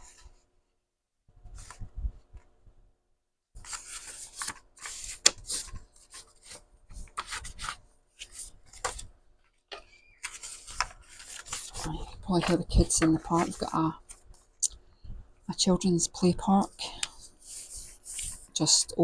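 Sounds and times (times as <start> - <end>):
paper rustling and sliding: 3.6 - 9.1, 9.7 - 14.4, 17.0 - 18.6.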